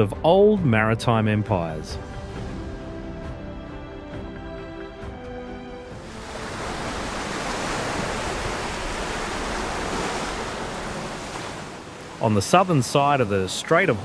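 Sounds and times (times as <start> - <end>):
background music: 0.0 - 7.9, 11.8 - 14.0
sea surf rushing: 5.8 - 14.0.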